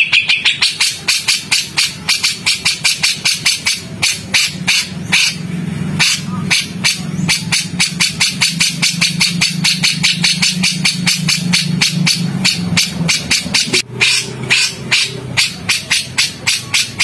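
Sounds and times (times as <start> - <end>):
songbird harsh clicking calls: 0.0 - 5.4, 6.0 - 17.0
steady low hum: 0.0 - 17.0.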